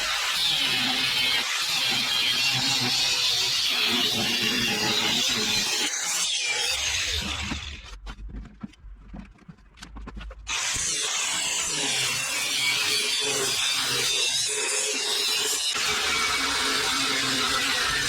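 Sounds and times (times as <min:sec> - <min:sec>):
power tool grinding: 0:10.5 - 0:18.0.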